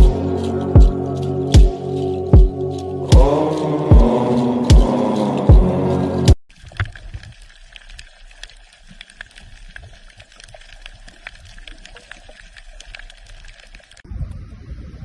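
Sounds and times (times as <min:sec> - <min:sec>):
water trickling and bubbling: 0:00.0 - 0:14.7
small clicks and drips: 0:06.5 - 0:14.1.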